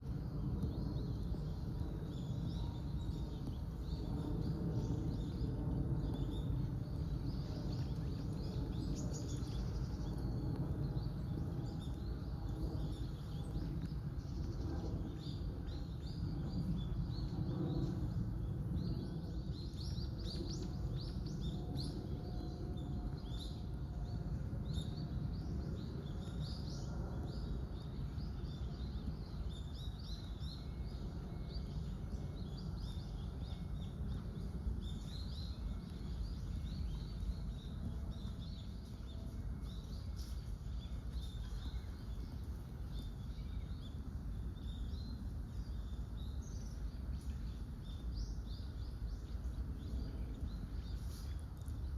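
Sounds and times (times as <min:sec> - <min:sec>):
low background rumble: 0:00.0 - 0:51.9.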